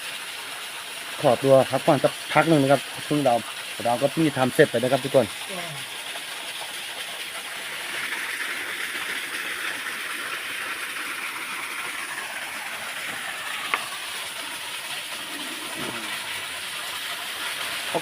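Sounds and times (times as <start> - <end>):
waterfall rushing: 11.8 - 18.0.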